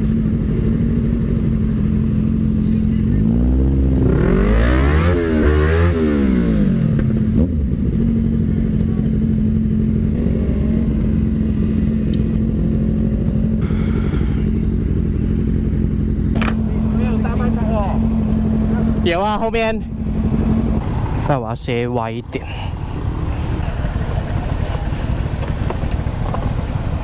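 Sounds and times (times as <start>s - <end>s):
motorcycle engine running: 0.0s - 27.0s
other engines sweeping in pitch: 10.2s - 15.0s.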